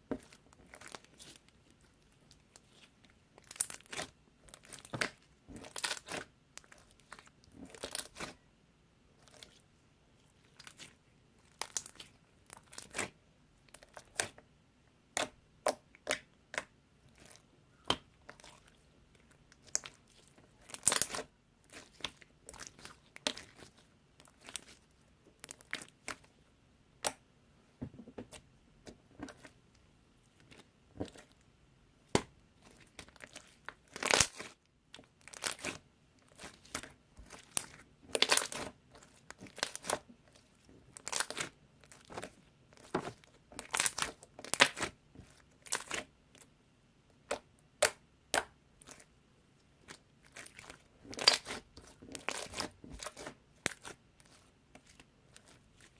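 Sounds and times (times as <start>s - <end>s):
slime crackling and crunching: 2.3s - 8.4s, 10.4s - 14.4s, 19.6s - 24.8s, 25.4s - 26.2s, 32.1s - 46.5s, 49.8s - 55.9s.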